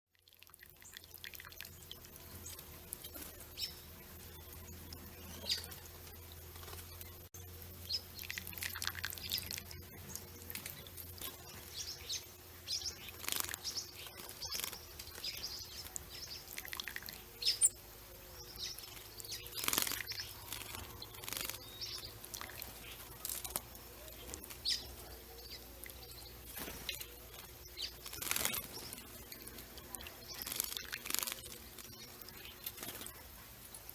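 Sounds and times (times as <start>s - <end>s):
songbirds chirping and calling: 0.6s - 33.9s.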